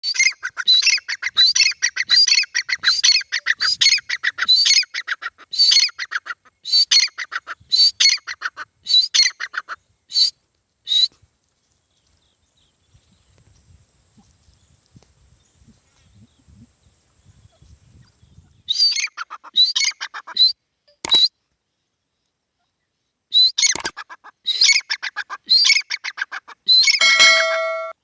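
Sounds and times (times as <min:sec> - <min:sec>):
bird calling shrill notes: 0:26.8 - 0:28.0.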